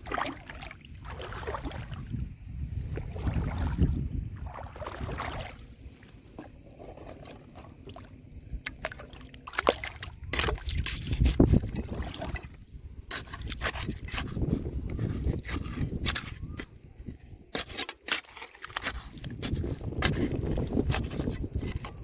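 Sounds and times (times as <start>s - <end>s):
water sloshing and trickling: 0.0s - 22.0s
stones knocking and scraping: 10.2s - 22.0s.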